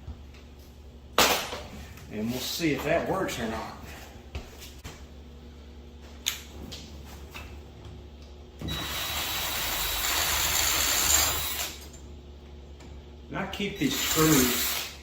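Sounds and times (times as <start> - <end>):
power drill running: 8.7 - 11.8, 13.8 - 15.0.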